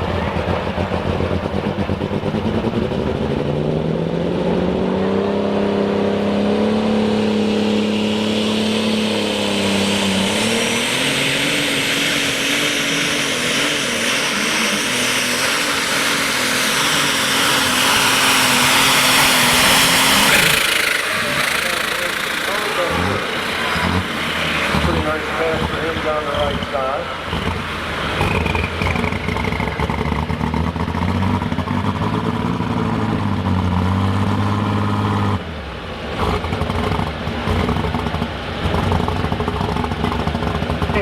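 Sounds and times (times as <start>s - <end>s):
tractor diesel engine at full power: 0.0s - 41.0s
high turbo hiss: 14.2s - 28.3s.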